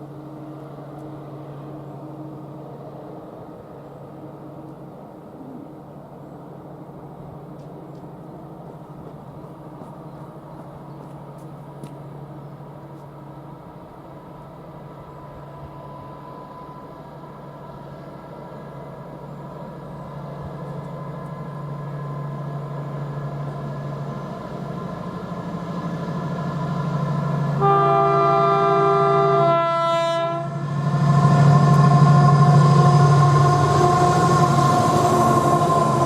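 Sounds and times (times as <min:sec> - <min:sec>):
train running rumble: 0:00.0 - 0:36.0
train horn chord: 0:27.5 - 0:36.0.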